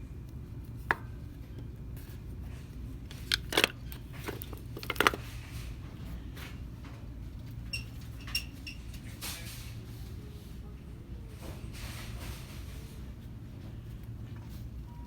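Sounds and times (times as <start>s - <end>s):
plastic items clicking and knocking: 3.1s - 5.3s.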